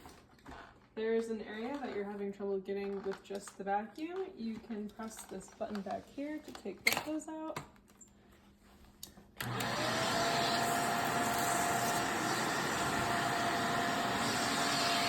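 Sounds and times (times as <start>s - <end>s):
vacuum cleaner motor whine: 9.4s - 15.0s.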